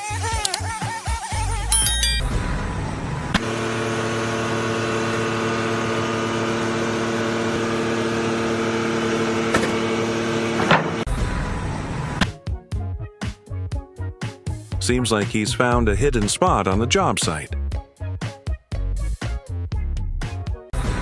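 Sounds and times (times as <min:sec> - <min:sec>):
motor humming: 0:00.0 - 0:12.3.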